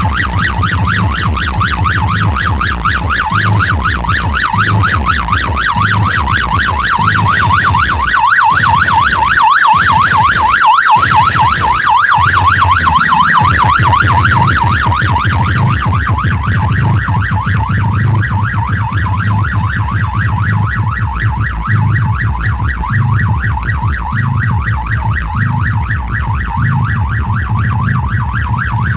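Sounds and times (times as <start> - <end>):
pulsing bass beat: 0.0 - 28.9
warbling electronic siren: 0.0 - 28.9.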